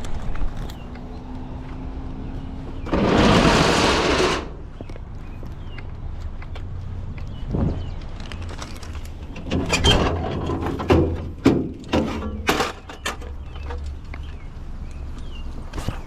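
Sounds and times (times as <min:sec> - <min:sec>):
loud clanks and rattles: 0:02.9 - 0:04.6, 0:09.2 - 0:13.8.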